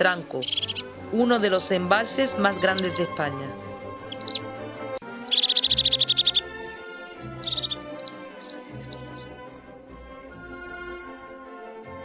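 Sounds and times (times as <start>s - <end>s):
soft background music: 0.0s - 12.0s
songbird whistling and trilling: 0.4s - 1.9s, 2.5s - 9.3s.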